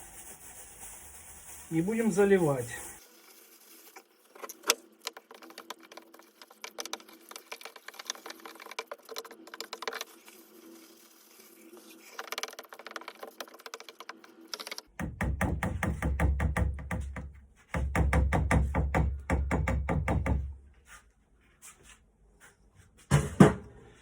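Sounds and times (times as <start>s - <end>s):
plaster stirred in a container: 0.0s - 14.3s.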